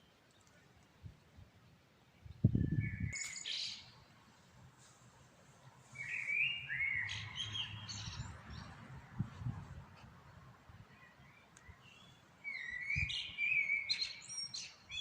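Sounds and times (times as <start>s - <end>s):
birds chirping: 1.8s - 4.2s, 5.5s - 8.9s, 10.8s - 15.0s.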